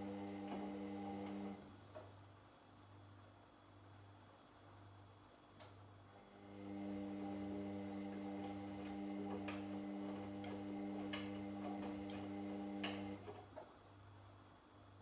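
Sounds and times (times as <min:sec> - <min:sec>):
washing machine motor hum: 0:00.0 - 0:01.8, 0:06.2 - 0:13.6.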